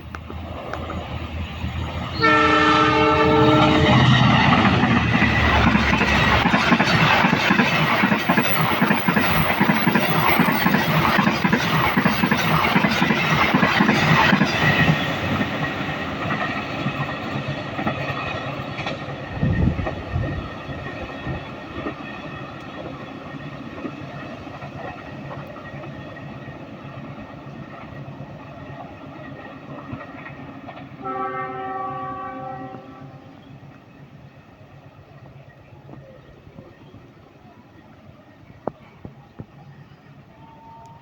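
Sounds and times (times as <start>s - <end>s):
train horn blast: 2.1s - 4.2s, 31.0s - 33.4s, 40.4s - 41.0s
train wheels clacking over rail joints: 3.3s - 31.8s.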